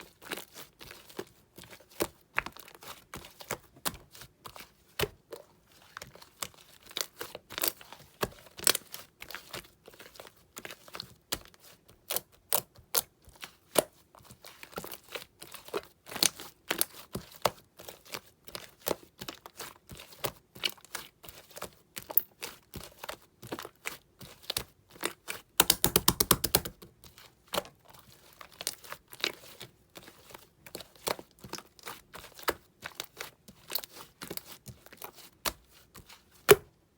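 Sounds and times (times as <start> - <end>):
slime sticky clicks and pops: 25.6 - 26.7.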